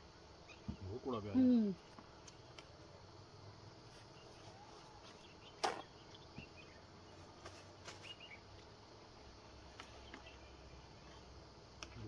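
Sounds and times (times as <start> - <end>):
bird chirps: 0.4 - 2.5, 4.1 - 8.5, 9.8 - 11.3.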